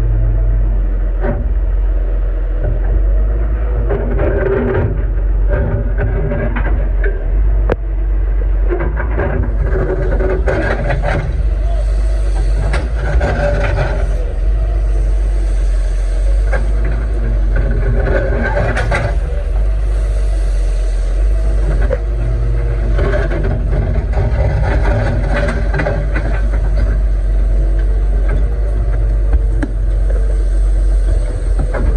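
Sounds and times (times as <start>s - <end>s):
excavator diesel engine running: 0.0s - 31.9s
sharp knocks and clatter: 3.8s - 7.8s, 8.6s - 11.6s, 12.3s - 14.3s, 16.4s - 19.8s, 21.6s - 30.2s, 31.0s - 31.9s.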